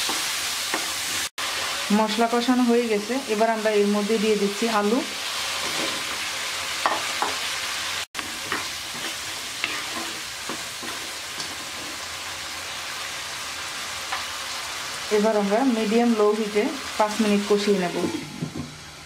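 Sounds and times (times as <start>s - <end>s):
potatoes sizzling in oil: 0.0s - 19.0s
wooden spatula scraping pan: 5.5s - 6.2s, 8.4s - 12.1s.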